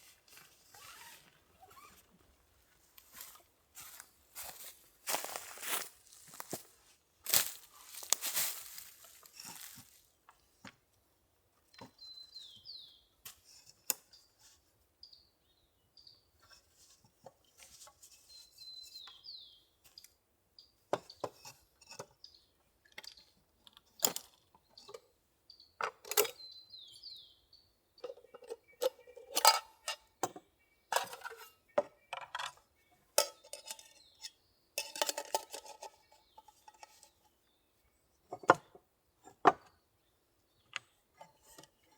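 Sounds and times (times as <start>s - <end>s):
metal cookware clinking: 33.2s - 34.1s, 34.8s - 35.9s.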